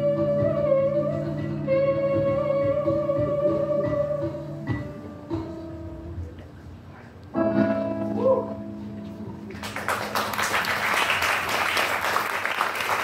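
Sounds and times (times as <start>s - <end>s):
audience applause: 9.6s - 13.0s.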